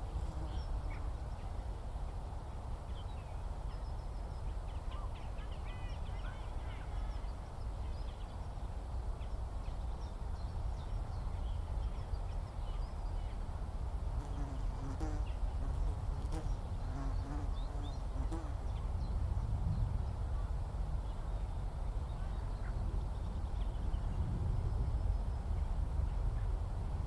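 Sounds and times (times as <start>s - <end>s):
small birds chirping: 14.2s - 19.9s.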